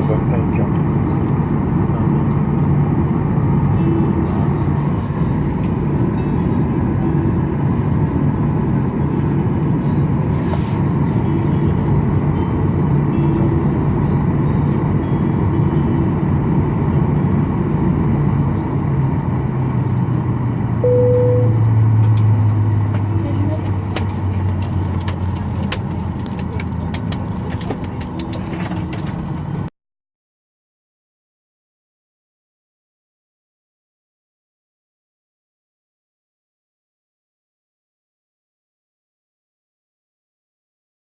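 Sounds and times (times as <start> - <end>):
single chime: 20.8 - 21.6.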